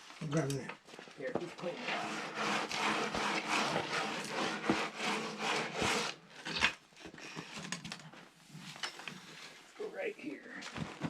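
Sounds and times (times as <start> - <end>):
hand tool scraping steel blade: 1.6 - 6.8.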